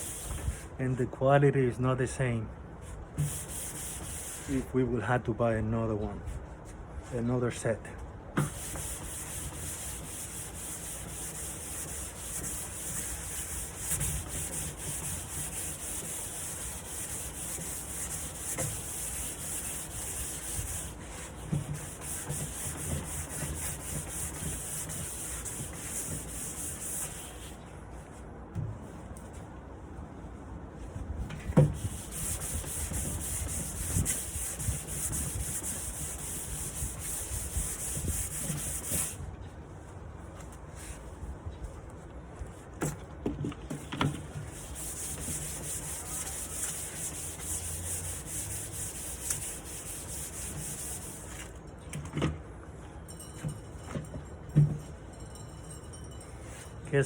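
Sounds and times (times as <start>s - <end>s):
sanding wood: 0.0s - 0.6s, 3.2s - 4.6s, 8.4s - 27.6s, 31.6s - 39.2s, 44.2s - 51.5s.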